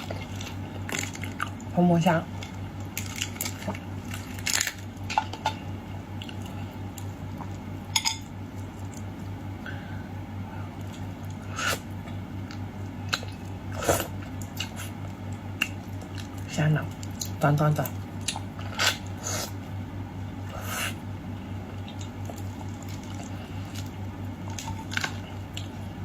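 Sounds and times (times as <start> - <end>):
steady low hum: 0.0 - 26.0
shrimp shells cracking: 2.4 - 5.4
quiet chewing: 6.1 - 7.7, 10.6 - 19.8, 21.6 - 26.0.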